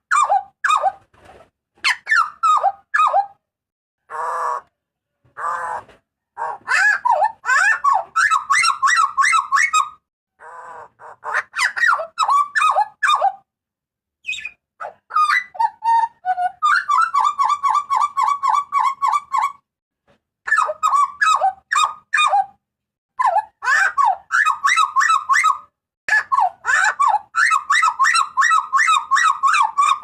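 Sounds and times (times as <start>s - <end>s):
bird giving harsh calls: 5.4s - 13.3s.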